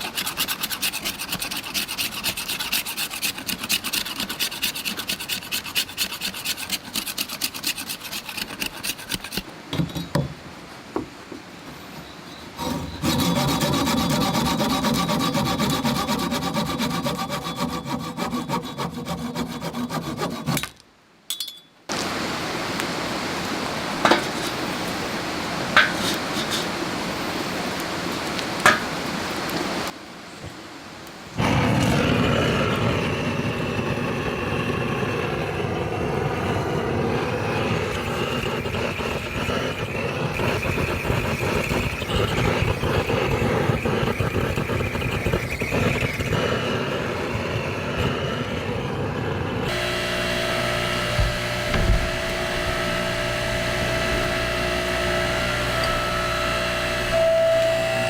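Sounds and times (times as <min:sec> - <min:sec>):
saw cutting through wood: 0:00.0 - 0:09.5, 0:12.6 - 0:20.7, 0:31.4 - 0:58.0.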